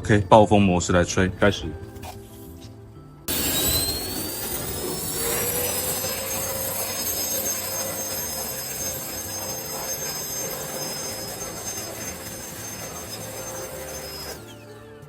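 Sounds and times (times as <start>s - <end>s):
blower rushing air: 3.3s - 14.8s
high blower whine: 3.3s - 15.0s.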